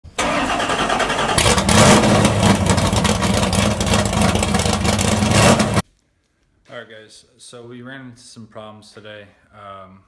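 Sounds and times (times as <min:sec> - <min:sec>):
car engine with pulsing exhaust: 0:01.1 - 0:05.8.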